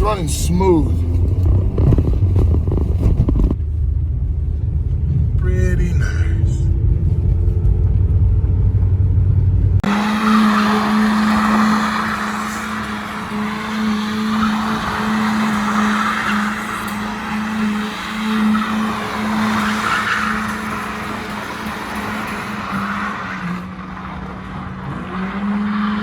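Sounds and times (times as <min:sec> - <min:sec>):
low rumble: 0:00.0 - 0:09.9
car engine at high revs: 0:00.0 - 0:26.0
tyres squealing and skidding: 0:09.8 - 0:26.0.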